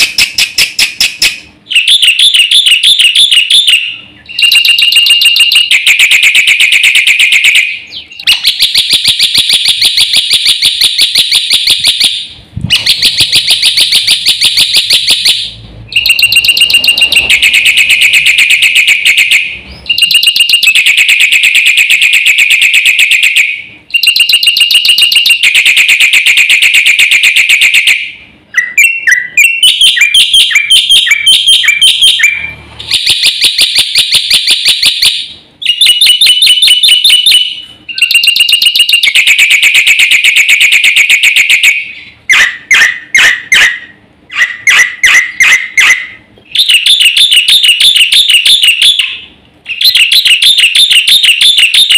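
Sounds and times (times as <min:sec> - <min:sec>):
bird chirps: 0:00.0 - 0:08.9, 0:10.2 - 0:20.9, 0:28.5 - 0:33.8, 0:34.6 - 0:39.2
starling singing harsh rapid notes: 0:12.7 - 0:21.1.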